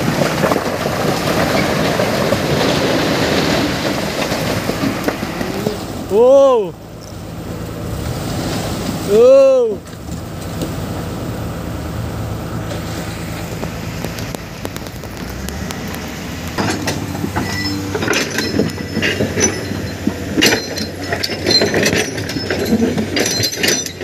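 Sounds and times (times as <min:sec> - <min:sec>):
diesel engine running: 0:00.0 - 0:24.0
metallic clanks and rattles: 0:12.6 - 0:24.0.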